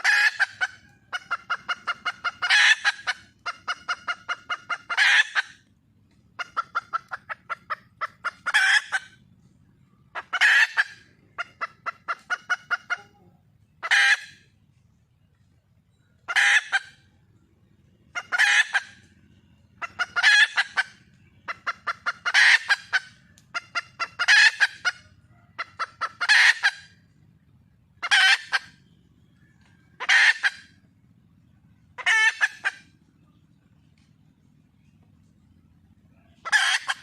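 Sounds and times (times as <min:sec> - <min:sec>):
hen calling: 0:00.0 - 0:05.7, 0:06.3 - 0:09.2, 0:10.1 - 0:14.5, 0:16.1 - 0:17.1, 0:18.1 - 0:27.0, 0:28.0 - 0:28.8, 0:29.6 - 0:30.8, 0:31.8 - 0:33.4, 0:35.8 - 0:37.0
hen clucking: 0:00.0 - 0:27.3, 0:28.0 - 0:31.2, 0:31.8 - 0:37.0.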